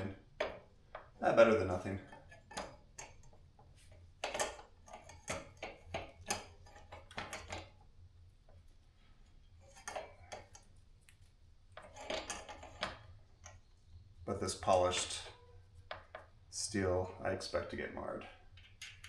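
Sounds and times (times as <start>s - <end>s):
metal bicycle parts clicking: 2.0s - 7.8s, 9.6s - 11.2s, 11.8s - 13.7s.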